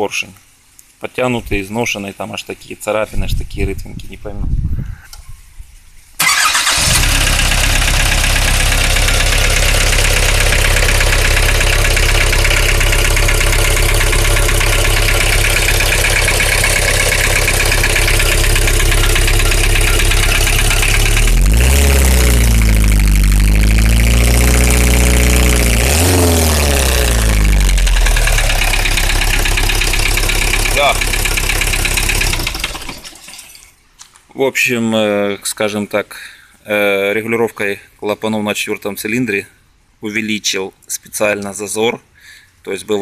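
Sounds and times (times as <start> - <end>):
engine revving: 6.2 - 33.1
diesel engine idling with knock: 7.0 - 33.1.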